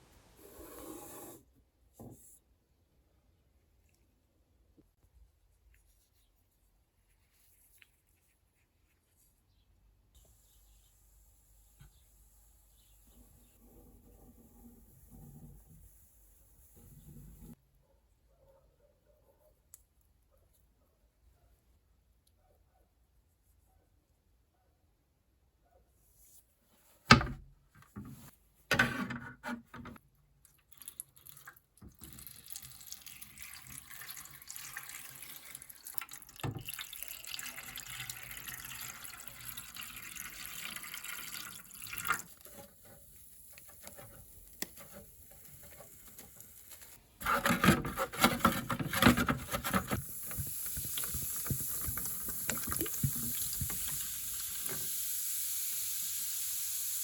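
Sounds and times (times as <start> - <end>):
water running and pouring: 30.5 - 44.1, 49.7 - 57.0.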